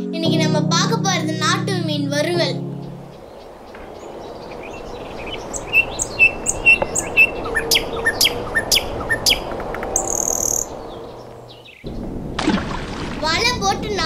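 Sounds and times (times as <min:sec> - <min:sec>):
steady background hiss: 0:02.2 - 0:12.3
birds chirping: 0:02.4 - 0:13.1.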